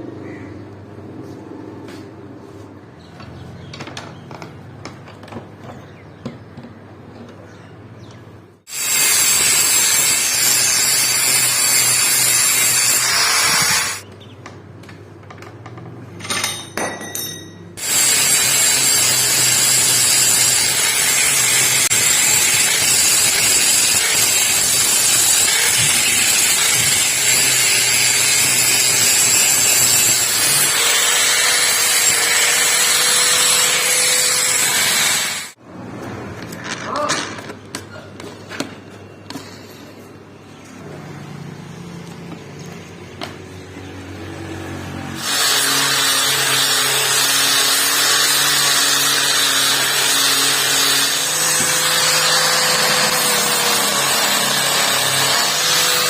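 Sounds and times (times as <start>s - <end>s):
handling clicks and knocks: 3.2s - 8.3s
power tool whining: 8.7s - 14.0s, 17.8s - 35.6s, 44.4s - 56.0s.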